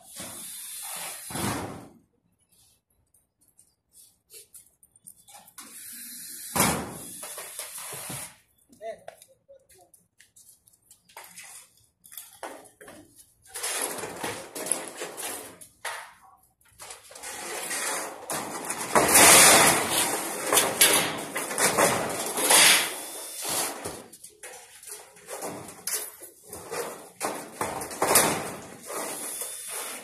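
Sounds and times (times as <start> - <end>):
sheet metal rattling and scraping: 13.4 - 15.7, 16.8 - 30.0.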